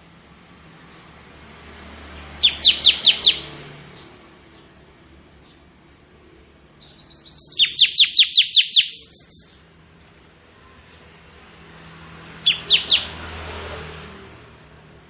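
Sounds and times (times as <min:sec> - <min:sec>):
bird singing sharp high notes: 0:02.4 - 0:03.6, 0:06.8 - 0:09.7, 0:12.4 - 0:13.2.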